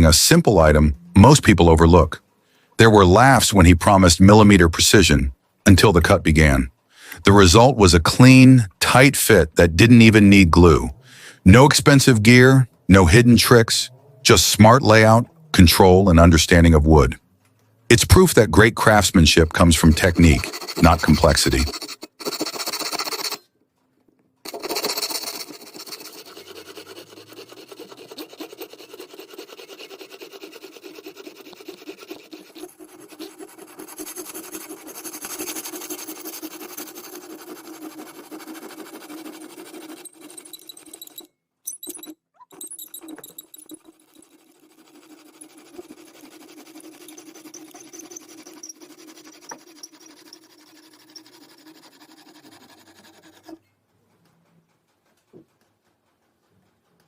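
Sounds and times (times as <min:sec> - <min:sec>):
hand tool rasping on wood: 0:17.9 - 0:23.4, 0:24.5 - 0:53.6.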